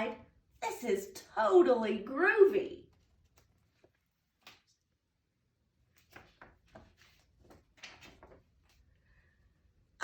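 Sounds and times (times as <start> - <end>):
book page turning rustles: 2.9 - 4.9, 5.8 - 8.9.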